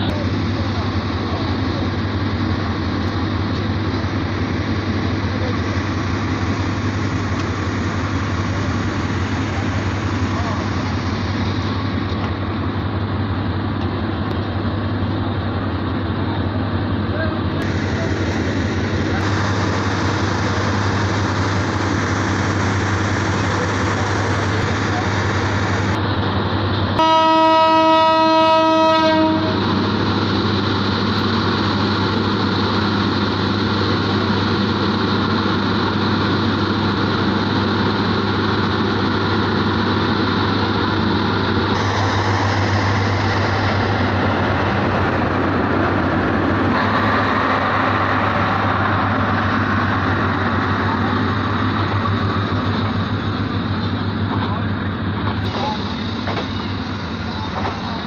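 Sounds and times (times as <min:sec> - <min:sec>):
diesel train engine humming: 0:00.0 - 0:58.0
train horn: 0:27.0 - 0:29.7.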